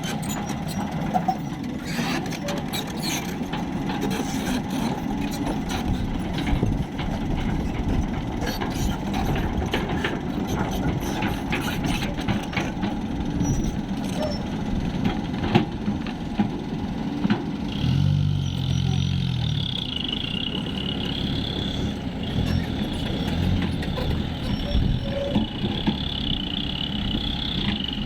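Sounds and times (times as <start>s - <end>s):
truck engine rumbling: 0.0s - 28.0s.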